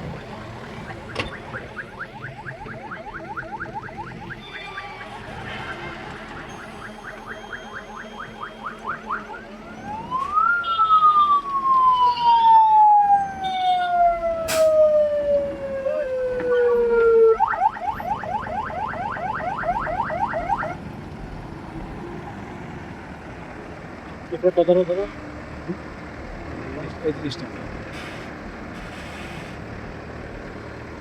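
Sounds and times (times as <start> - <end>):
electronic siren: 0.1 - 20.8.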